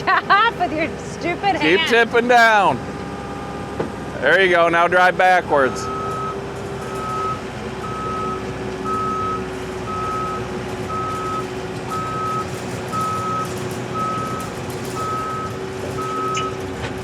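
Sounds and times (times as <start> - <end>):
diesel engine running: 0.0 - 17.0
backup alarm beeping: 5.5 - 16.6.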